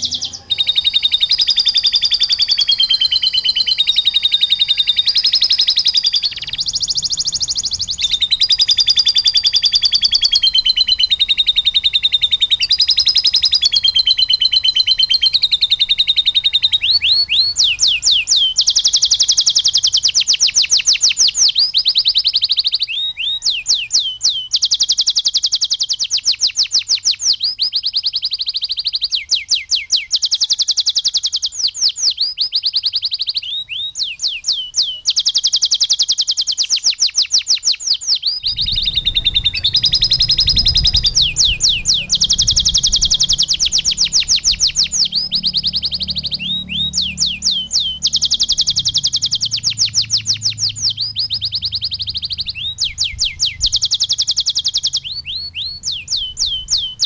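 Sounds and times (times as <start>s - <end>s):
canary singing trills: 0.0s - 57.0s
low rumble: 38.4s - 45.8s.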